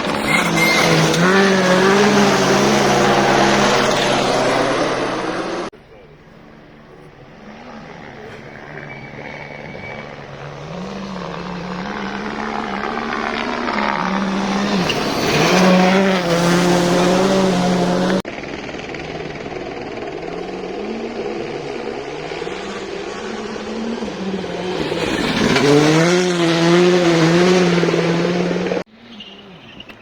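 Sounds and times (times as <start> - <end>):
rally car changing gears: 0.0 - 5.7, 6.9 - 18.2, 21.4 - 30.0
rally car engine at full throttle: 0.0 - 30.0.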